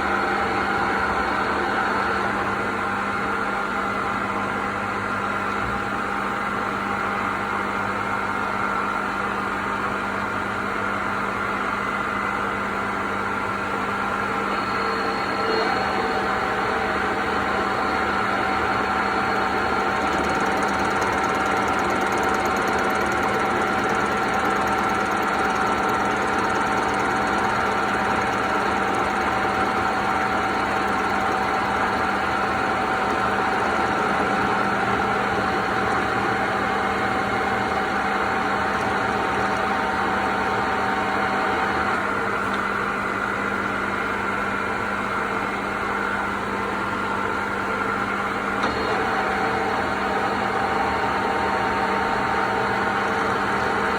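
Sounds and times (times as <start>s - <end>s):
machine tool motor hum: 14.3s - 42.8s
whining tones: 14.5s - 34.7s
metal cutting noise: 19.7s - 33.5s.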